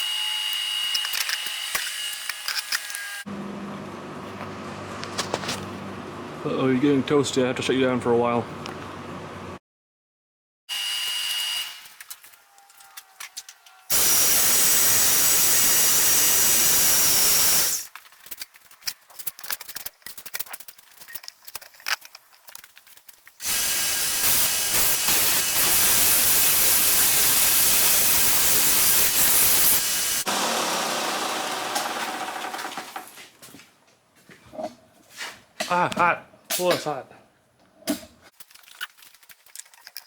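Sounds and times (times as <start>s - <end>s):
clicks and light scraping: 17.9s - 23.4s, 37.6s - 40.0s.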